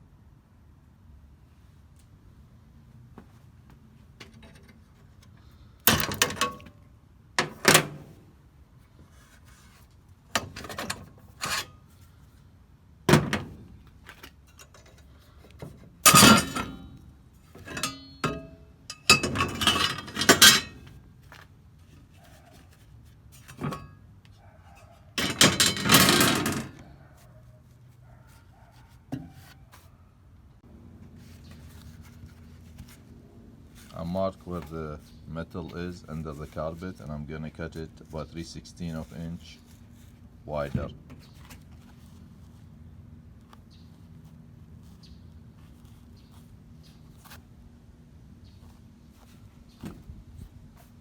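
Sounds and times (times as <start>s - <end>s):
tools and parts clattering: 4.2s - 6.8s, 7.4s - 8.2s, 10.3s - 12.0s, 13.1s - 21.4s, 23.4s - 24.1s, 24.7s - 27.0s
rustling scrapes: 8.8s - 10.2s, 31.1s - 47.5s.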